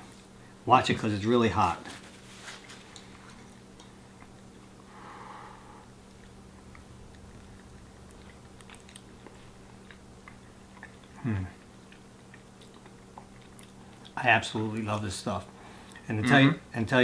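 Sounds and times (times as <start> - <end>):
low steady hum: 0.0 - 17.0
faint chewing: 1.8 - 4.9, 6.0 - 16.2.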